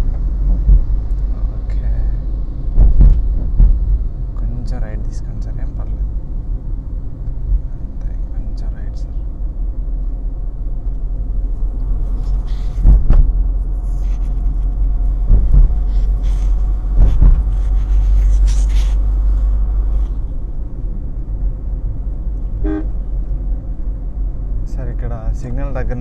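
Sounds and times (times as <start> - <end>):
car rumble from inside cabin: 0.0 - 26.0
short thumps: 2.8 - 4.0, 12.4 - 13.4, 14.2 - 19.0.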